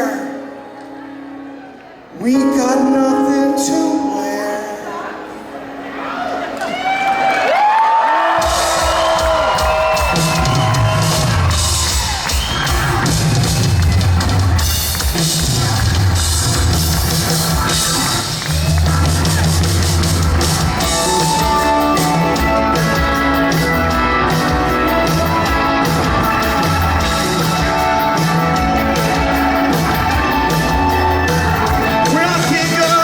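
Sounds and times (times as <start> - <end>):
held guitar or keyboard line: 0.0 - 6.6, 12.7 - 33.0
drum kit: 8.3 - 33.0
rock band playing: 8.3 - 33.0
bass line: 8.4 - 33.0.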